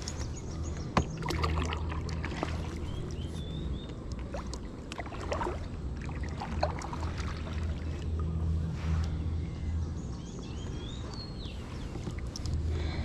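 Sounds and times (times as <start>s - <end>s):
paddle splashing in water: 1.0s - 3.3s, 4.2s - 8.1s.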